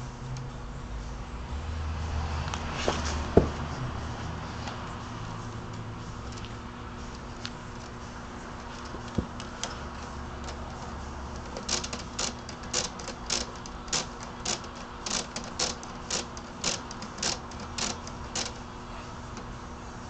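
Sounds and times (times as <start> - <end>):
steady low hum: 0.0 - 20.0
plastic gear mechanism clicking: 8.6 - 18.6.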